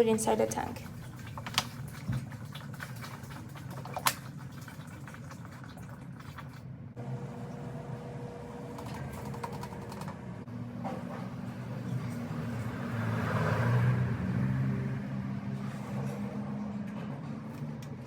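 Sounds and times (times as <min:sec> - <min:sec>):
water pouring into tank: 0:00.6 - 0:06.7.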